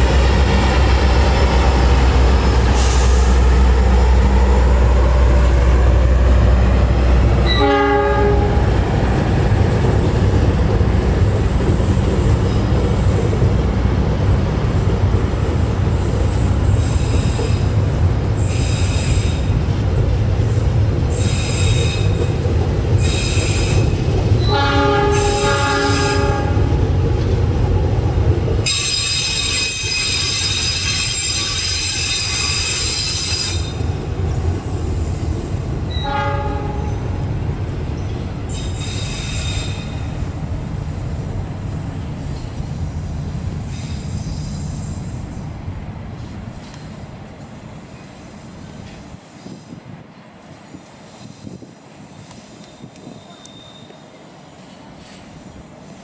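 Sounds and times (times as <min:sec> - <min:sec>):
train wheels rumbling on rail: 0:00.0 - 0:56.0
train horn: 0:07.4 - 0:08.7, 0:24.4 - 0:26.8, 0:35.9 - 0:37.1
high-pitched wheel squeal: 0:28.7 - 0:33.8, 0:52.6 - 0:54.2.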